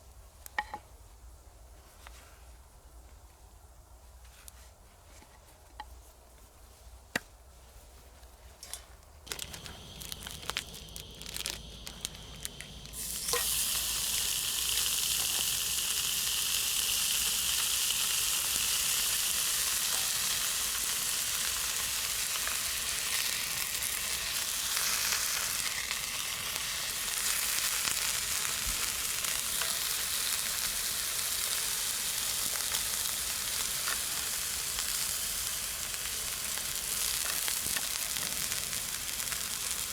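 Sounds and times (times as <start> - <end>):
burger meat sizzling: 9.3 - 39.9.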